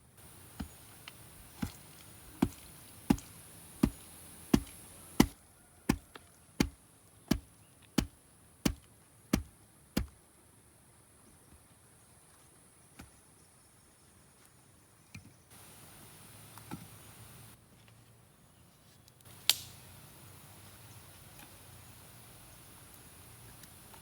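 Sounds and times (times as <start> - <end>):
faint high hiss: 15.5 - 17.6, 19.2 - 24.0
sharp click: 19.4 - 19.8.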